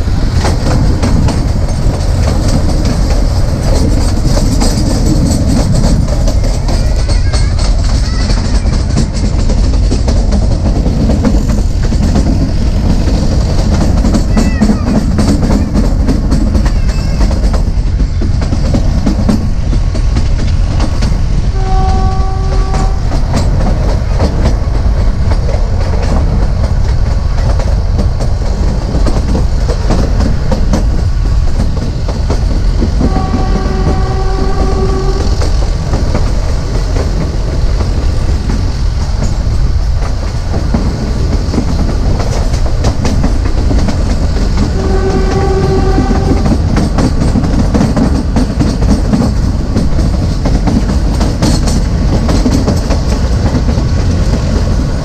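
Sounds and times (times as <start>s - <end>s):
train wheels clattering on rails: 0.0s - 55.0s
locomotive horn blast: 21.5s - 23.2s, 33.0s - 35.4s, 44.6s - 46.6s.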